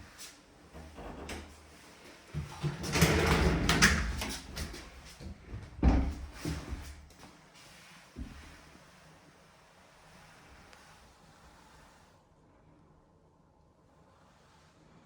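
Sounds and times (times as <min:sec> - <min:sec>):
door sliding along track: 0:02.5 - 0:05.0.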